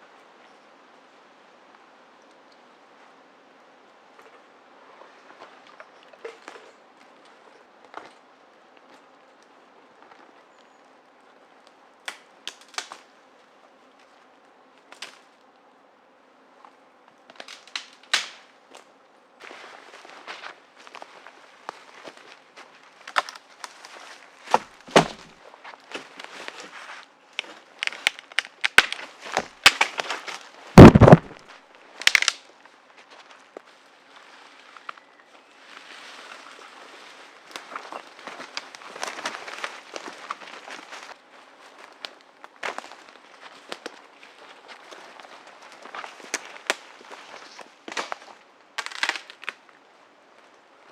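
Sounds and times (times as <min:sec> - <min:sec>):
sticks snapping: 0:12.1 - 0:13.1, 0:17.3 - 0:18.5, 0:27.4 - 0:31.4, 0:32.0 - 0:32.4, 0:47.9 - 0:49.6
heavy thump: 0:24.9 - 0:25.3, 0:30.8 - 0:31.4.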